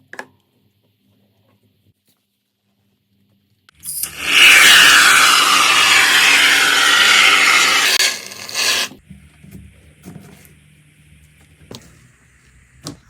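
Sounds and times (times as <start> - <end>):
harsh rasping scrape: 4.0 - 9.0.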